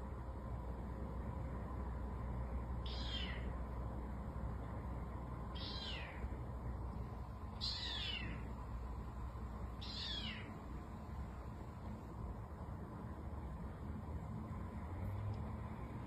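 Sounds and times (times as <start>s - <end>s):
cat meowing: 2.8s - 3.5s, 5.6s - 6.3s, 7.6s - 8.5s, 9.8s - 10.6s.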